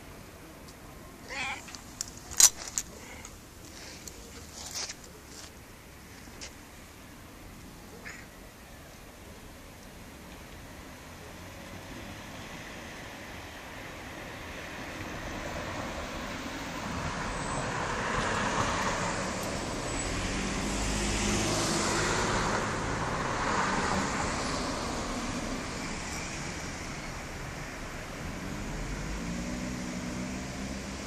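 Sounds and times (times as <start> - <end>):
passing vehicles rushing: 10.8 - 31.0.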